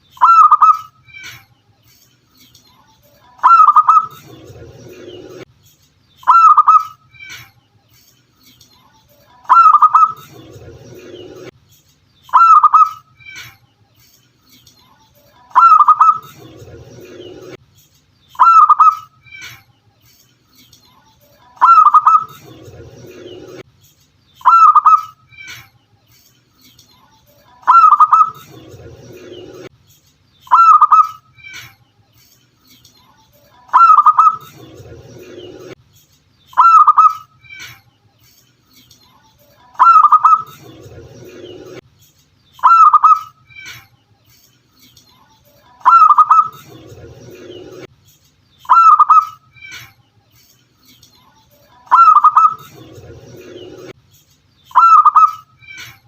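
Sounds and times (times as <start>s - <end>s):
dove cooing: 21.6s - 22.4s, 27.7s - 28.4s, 54.8s - 55.4s.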